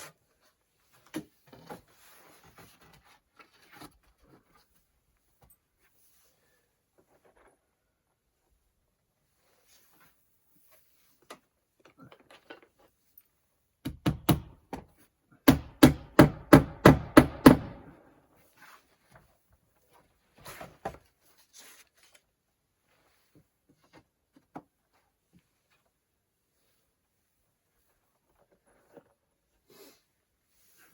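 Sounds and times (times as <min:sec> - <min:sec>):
hammer driving nails: 0:13.8 - 0:18.0.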